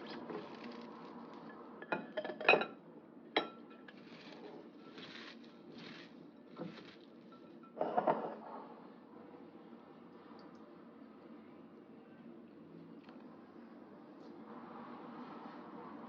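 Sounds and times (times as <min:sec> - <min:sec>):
dishes and utensils clinking: 0:01.8 - 0:02.8, 0:03.4 - 0:04.0, 0:07.3 - 0:08.5.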